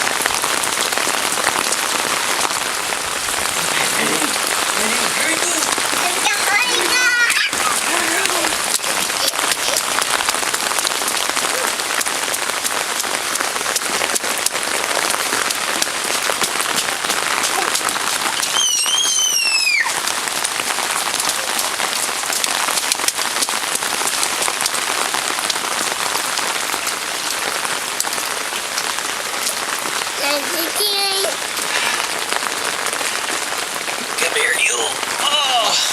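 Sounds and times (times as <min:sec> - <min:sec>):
heavy rain pouring: 0:00.0 - 0:35.9.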